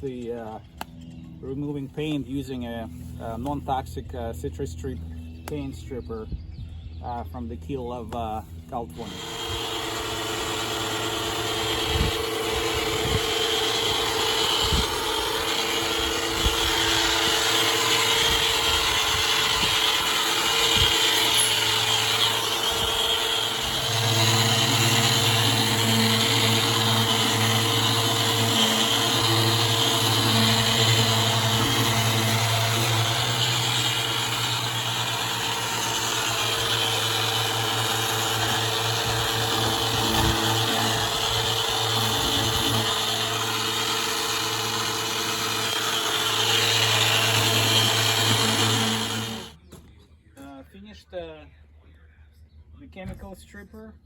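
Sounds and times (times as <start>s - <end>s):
electric power tool running: 8.5s - 49.6s.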